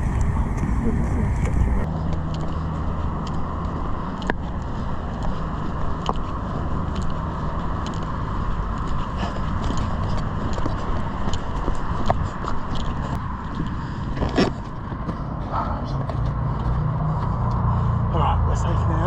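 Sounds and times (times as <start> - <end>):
road traffic rumble: 0.0 - 19.0
footsteps and handling clicks: 1.4 - 17.7.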